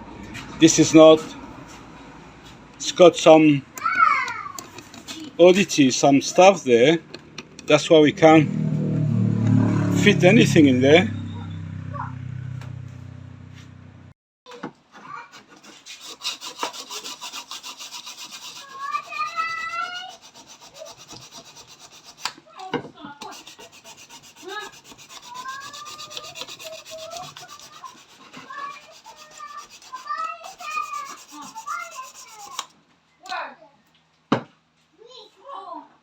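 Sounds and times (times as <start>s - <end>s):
rasping on plastic pipe: 15.4s - 22.4s, 23.2s - 32.7s.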